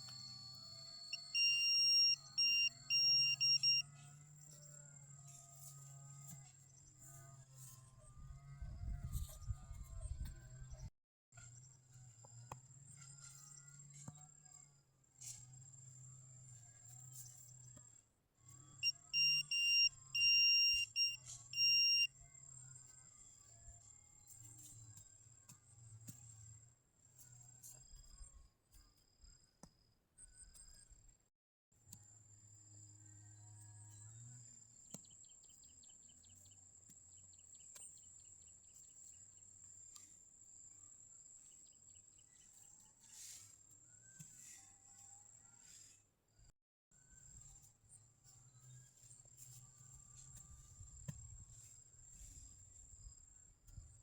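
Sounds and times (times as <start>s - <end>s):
insect chirping: 0.0s - 3.8s
metal detector beeps: 0.0s - 3.8s, 18.8s - 22.1s.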